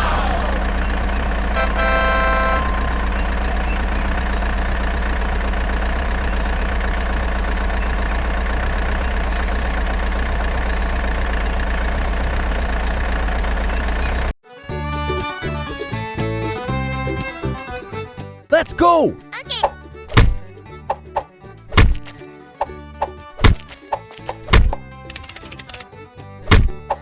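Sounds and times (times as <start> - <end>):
horn honk: 0.0 - 6.0
vehicle engine idling: 0.0 - 18.6, 19.7 - 27.0.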